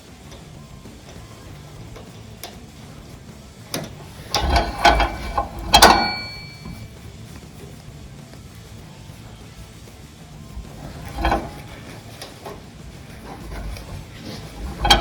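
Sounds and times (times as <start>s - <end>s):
metal tools clanking: 0.3s - 7.0s, 10.5s - 15.0s
steel part set down ringing: 3.7s - 6.9s, 10.7s - 12.6s, 13.2s - 15.0s.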